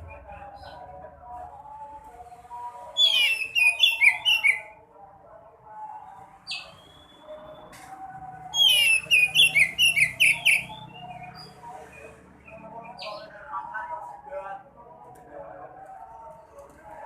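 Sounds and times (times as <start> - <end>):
songbird high chirping: 3.0 - 4.7, 8.6 - 13.3.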